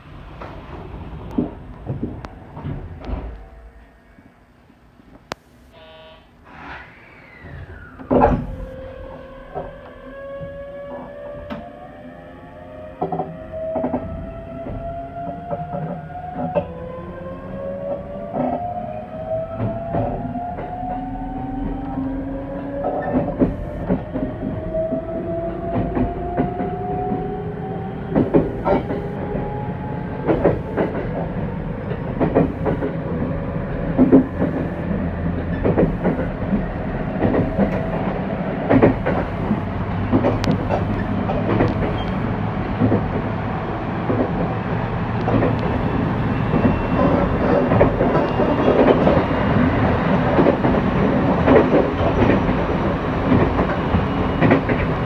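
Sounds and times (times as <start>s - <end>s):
train rumble inside carriage: 0.0s - 5.4s, 7.2s - 55.0s
rising train whine: 0.0s - 55.0s
wheels clacking over rail joints: 28.1s - 29.2s, 30.2s - 43.4s, 44.0s - 55.0s.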